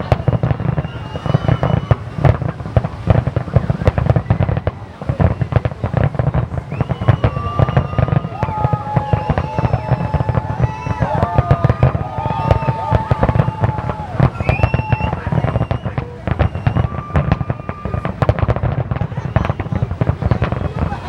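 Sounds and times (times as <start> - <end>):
deep fireworks booms: 0.0 - 21.0
fireworks bangs and crackling: 0.0 - 21.0
high whistling fireworks: 0.0 - 21.0.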